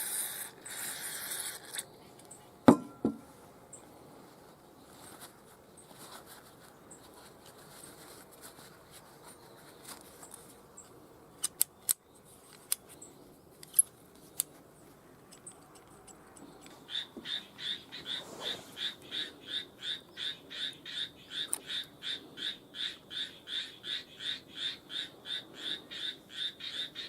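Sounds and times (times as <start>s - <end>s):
frog croaking: 16.9s - 27.0s.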